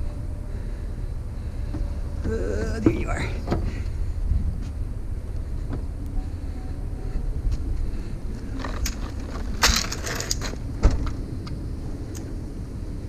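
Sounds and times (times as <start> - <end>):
low rumble: 0.0 - 13.0
metal parts clicking: 8.6 - 10.6
metal rattling clatter: 8.6 - 11.1.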